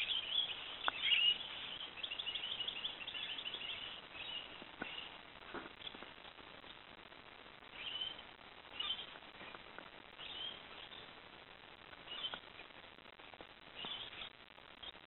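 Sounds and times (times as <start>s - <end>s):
faint high bird chirps: 0.0s - 5.2s, 7.7s - 9.2s, 10.2s - 11.1s, 12.0s - 12.4s, 13.8s - 15.0s
steady low hiss: 0.0s - 15.0s.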